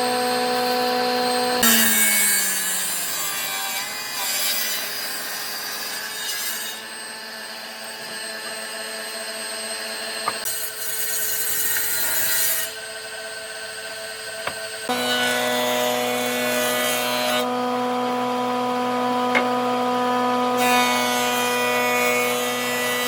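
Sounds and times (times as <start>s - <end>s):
power tool motor hum: 13.6s - 23.0s.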